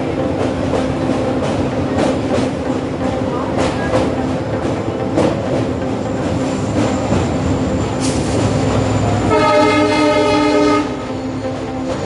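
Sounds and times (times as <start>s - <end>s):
train wheels rumbling on rails: 0.0s - 12.0s
train horn: 9.0s - 11.3s.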